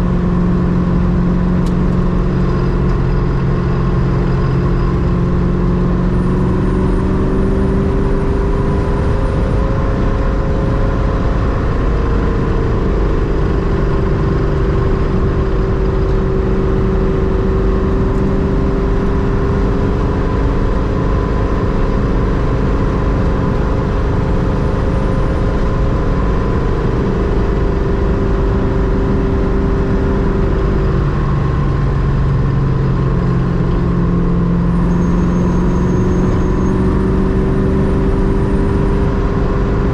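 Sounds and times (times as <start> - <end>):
car engine cruising: 0.0 - 39.9.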